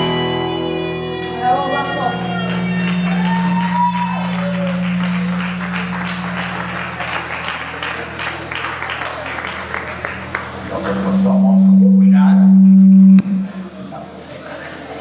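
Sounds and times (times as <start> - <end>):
rock band final chord: 0.0 - 14.0
audience clapping: 1.1 - 11.6.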